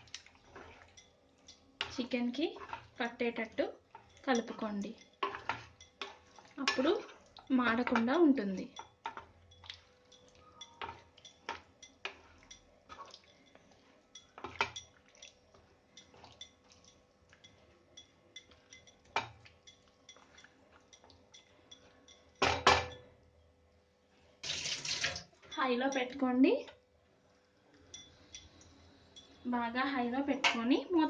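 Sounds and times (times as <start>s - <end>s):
spatula scraping a pan: 0.2s - 1.1s, 1.8s - 3.2s, 3.8s - 8.1s, 10.7s - 15.0s.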